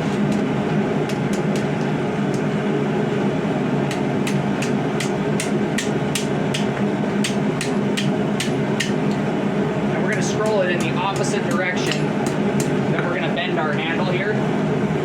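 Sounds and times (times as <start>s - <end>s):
hammer striking steel on anvil: 3.9s - 9.0s.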